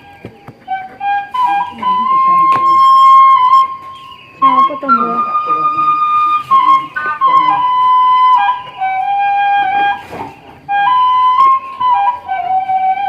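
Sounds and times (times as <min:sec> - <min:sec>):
flute melody: 0:00.0 - 0:13.0.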